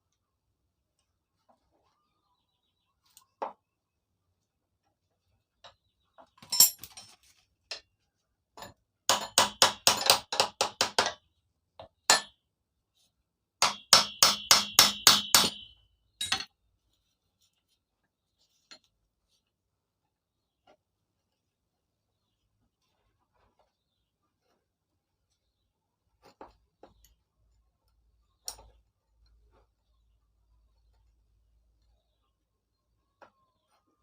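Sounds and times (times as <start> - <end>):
hammer blows on metal: 13.6 - 15.8.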